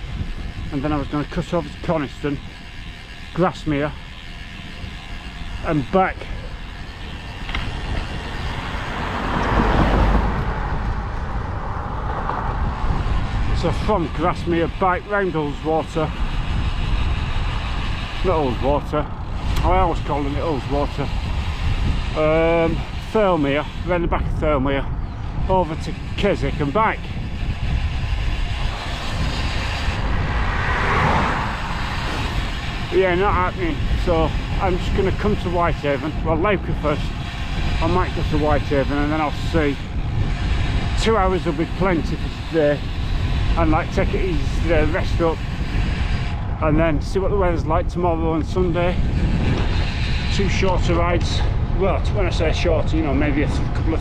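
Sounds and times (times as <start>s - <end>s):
wind rumble on microphone: 0.0s - 54.0s
car passing: 6.5s - 14.8s, 27.0s - 34.6s.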